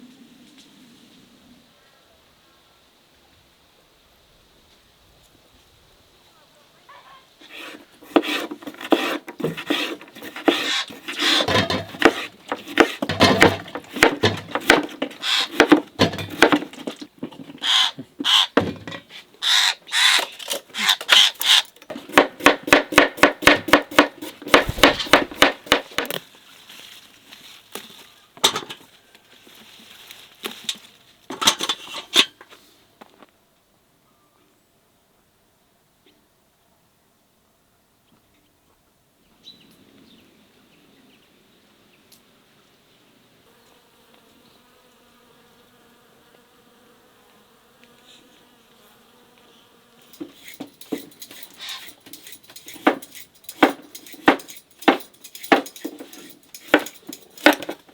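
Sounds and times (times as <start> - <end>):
utensils knocking and scraping: 7.5 - 17.6, 18.6 - 19.1, 20.1 - 26.2, 50.1 - 57.9
rapid even knocking: 22.1 - 26.1.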